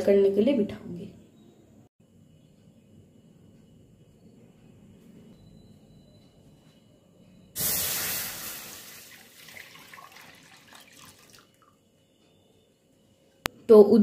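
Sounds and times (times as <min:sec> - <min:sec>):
milk pouring into metal pan: 0:08.1 - 0:11.7.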